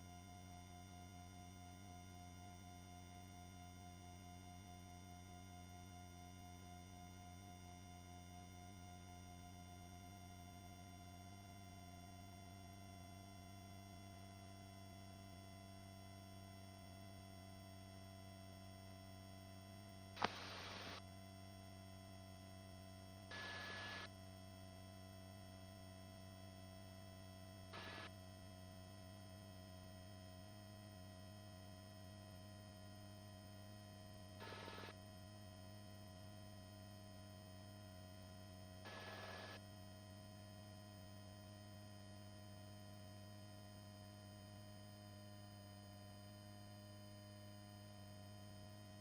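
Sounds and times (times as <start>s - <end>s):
faint intercom hum: 20.2s - 21.0s, 23.3s - 24.1s.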